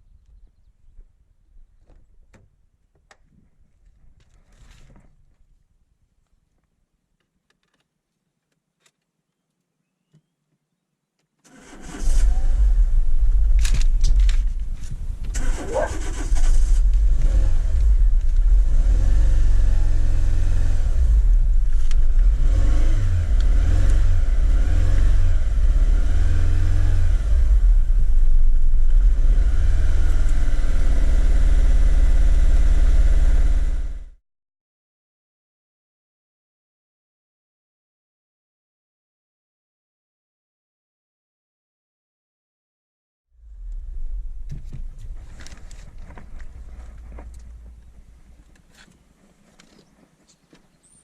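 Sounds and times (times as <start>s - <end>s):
engine misfiring: 11.5s - 20.2s
petrol engine starting and running: 11.5s - 34.2s.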